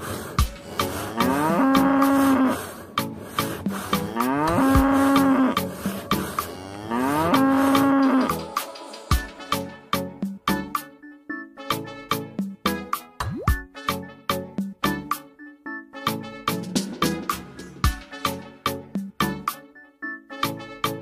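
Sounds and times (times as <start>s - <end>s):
music with clicking beat: 0.4s - 11.0s, 12.4s - 15.4s, 16.1s - 19.8s
cow mooing: 0.8s - 2.7s, 3.9s - 8.5s.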